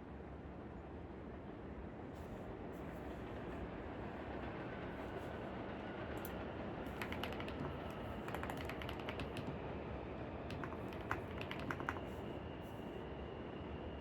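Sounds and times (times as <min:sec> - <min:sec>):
keyboard typing: 0:06.2 - 0:09.7, 0:10.5 - 0:12.3.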